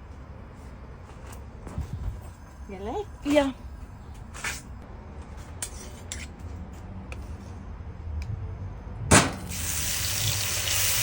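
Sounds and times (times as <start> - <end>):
food sizzling in hot oil: 9.5 - 11.0.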